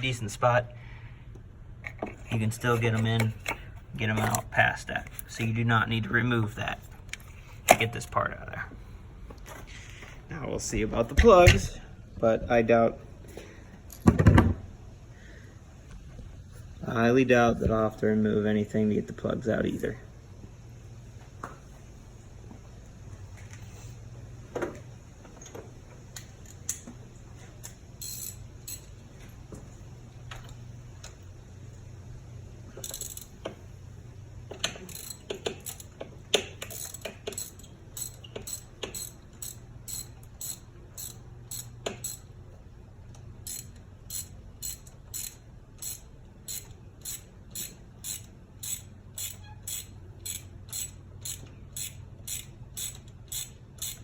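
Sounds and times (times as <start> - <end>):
steady low hum: 0.0 - 54.0
hand ratchet clicking: 27.6 - 29.0, 32.8 - 33.6, 34.5 - 42.3, 43.4 - 54.0.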